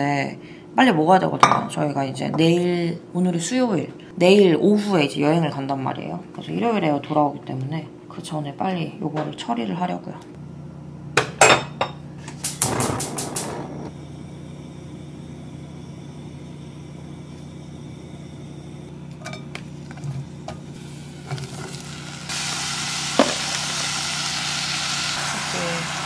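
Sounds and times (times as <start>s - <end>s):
low steady hum: 10.0s - 24.8s
mushrooms frying sizzle: 19.7s - 26.0s.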